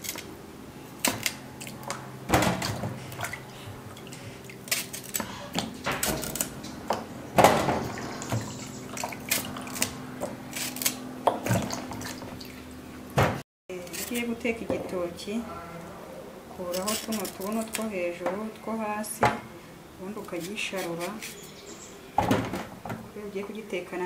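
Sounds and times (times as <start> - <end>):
water splashing and dripping: 1.1 - 10.4, 11.3 - 12.8.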